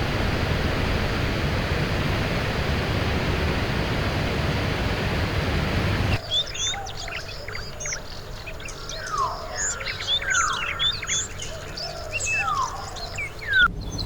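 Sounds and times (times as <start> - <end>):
rushing water: 0.0 - 6.2
birds chirping: 0.0 - 14.0.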